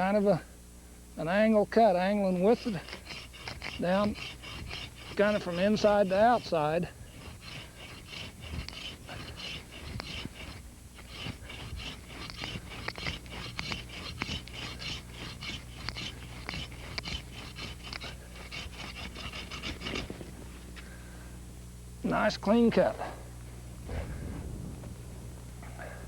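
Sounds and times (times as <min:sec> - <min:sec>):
hand saw cutting a branch: 0:02.0 - 0:20.4.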